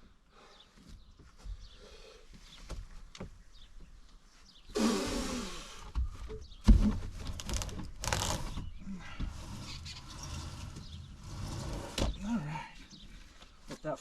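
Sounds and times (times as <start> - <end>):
rough scraping with creaking: 6.8 - 13.5.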